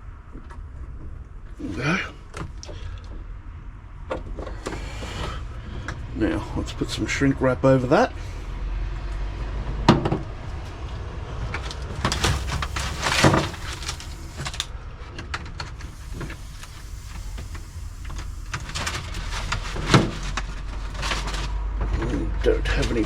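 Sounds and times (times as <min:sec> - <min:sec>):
steady low hum: 0:00.0 - 0:23.0
clicks knocks and rustles of handling: 0:10.0 - 0:23.0.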